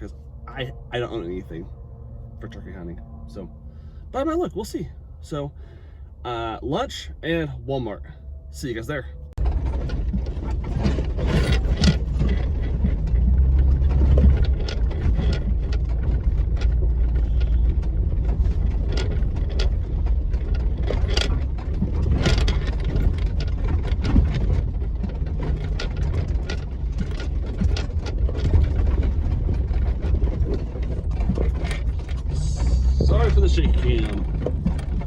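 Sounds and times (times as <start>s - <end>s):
road rumble inside vehicle: 0.0s - 35.0s
loose parts rattling: 9.4s - 35.0s.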